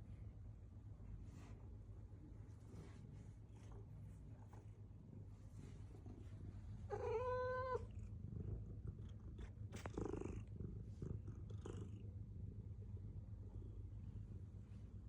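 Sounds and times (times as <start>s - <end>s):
cat purring: 2.6s - 14.3s.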